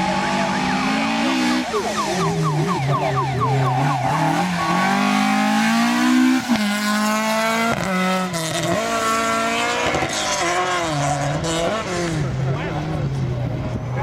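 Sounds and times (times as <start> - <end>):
rally car engine accelerating: 0.0 - 14.0.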